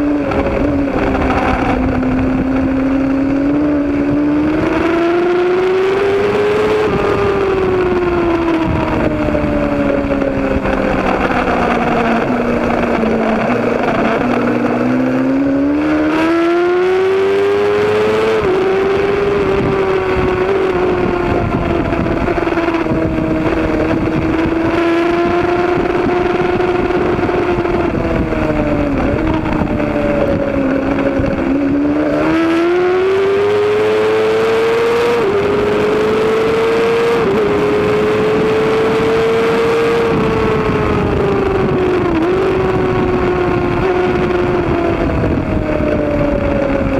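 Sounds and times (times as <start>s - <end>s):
rushing noise: 0.0s - 35.9s
motorcycle engine at high revs: 0.0s - 46.9s.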